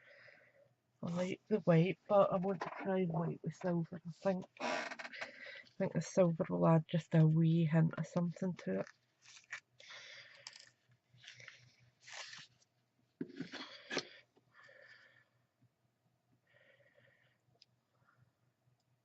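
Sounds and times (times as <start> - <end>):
paper rustling and scraping: 11.2 - 12.7.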